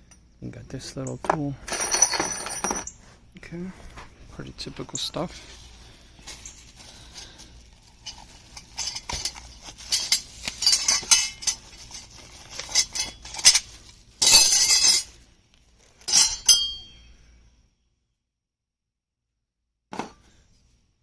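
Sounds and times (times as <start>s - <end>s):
small metal parts clinking: 1.0s - 3.0s, 6.2s - 17.2s
scraping: 4.9s - 15.2s.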